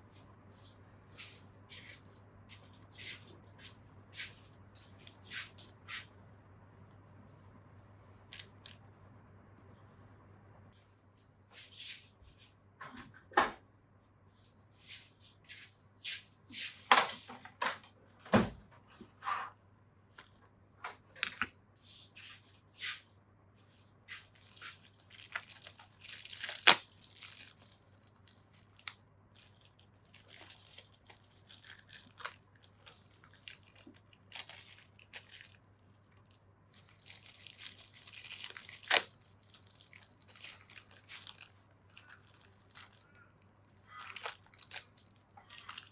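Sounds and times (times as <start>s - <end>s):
faint low hum: 0.0s - 11.4s
tools clicking and knocking: 21.2s - 21.6s.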